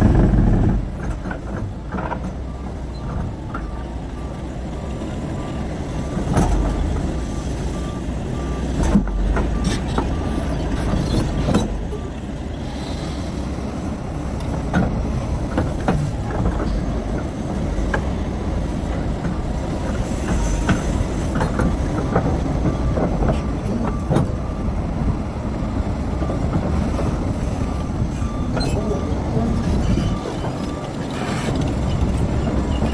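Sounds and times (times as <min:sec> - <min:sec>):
excavator engine rumble: 0:00.0 - 0:32.9
reversing alarm beeping: 0:02.4 - 0:10.9, 0:11.9 - 0:12.2, 0:20.4 - 0:24.8, 0:27.5 - 0:32.9.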